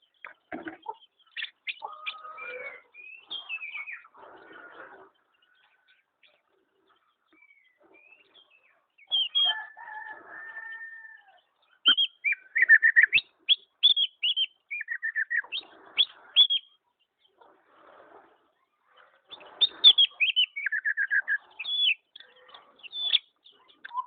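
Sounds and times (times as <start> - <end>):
songbird chirping and whistling: 1.2 - 4.2, 7.3 - 9.8, 11.8 - 16.8, 19.3 - 24.0.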